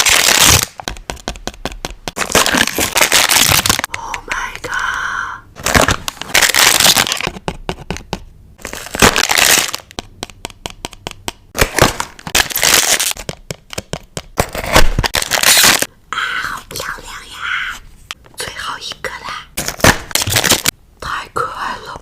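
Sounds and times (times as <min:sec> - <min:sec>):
paper and plastic crinkling: 0:00.0 - 0:00.8, 0:02.2 - 0:04.4, 0:05.6 - 0:07.4, 0:08.6 - 0:09.9, 0:11.6 - 0:13.2, 0:14.4 - 0:15.9, 0:19.6 - 0:20.7.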